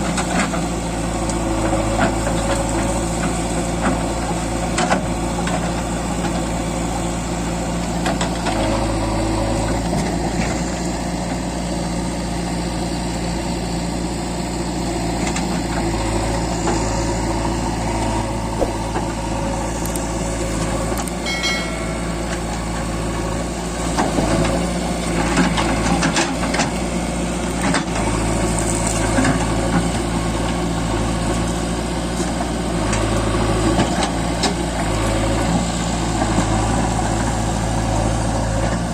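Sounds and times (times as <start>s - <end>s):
diesel engine running: 0.0s - 38.9s
clunks: 18.0s - 24.6s.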